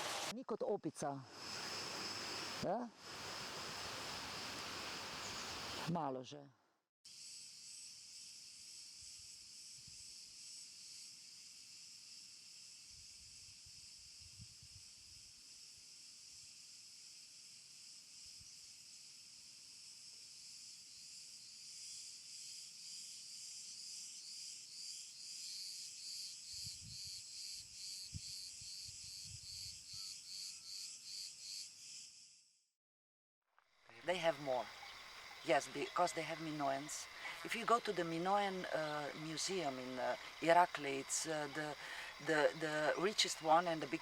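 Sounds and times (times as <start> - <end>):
insects singing: 33.9 - 44.0.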